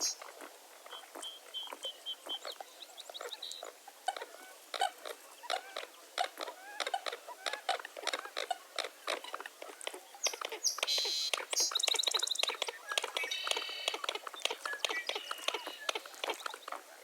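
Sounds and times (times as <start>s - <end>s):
birds chirping and calling: 10.2s - 16.8s.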